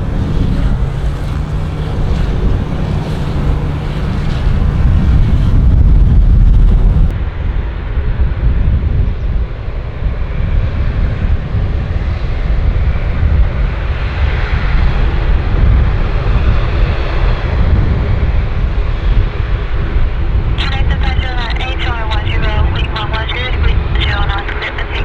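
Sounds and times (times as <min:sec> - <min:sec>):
airliner engines rumbling: 0:00.0 - 0:07.1.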